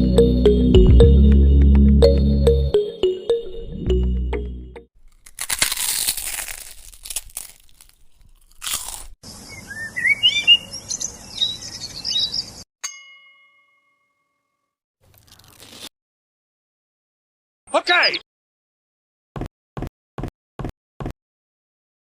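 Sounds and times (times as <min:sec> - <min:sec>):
crunching and rustling: 0:05.0 - 0:09.2, 0:15.1 - 0:15.9
bird chirps: 0:09.3 - 0:12.6
single ding: 0:12.8 - 0:14.0.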